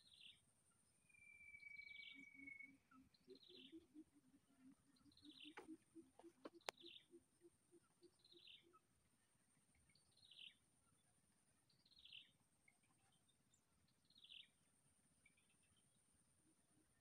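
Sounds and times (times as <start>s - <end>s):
bird chirping faintly: 0.0s - 17.0s.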